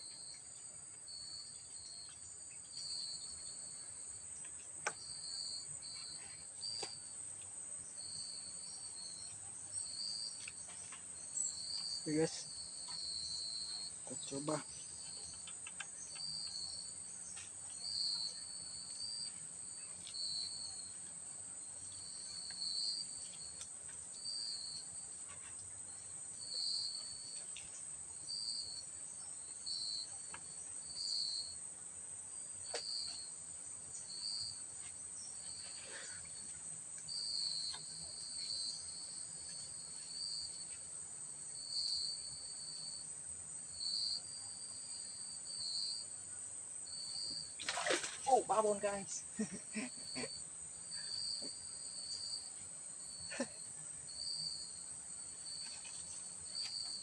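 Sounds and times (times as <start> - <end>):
insects shrilling drone: 11.4 - 21.0, 37.1 - 57.0.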